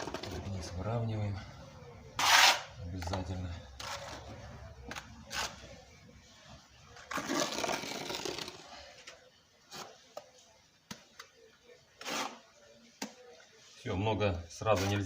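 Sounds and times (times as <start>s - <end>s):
trowel scraping wet mortar: 2.2s - 2.7s, 12.0s - 12.4s.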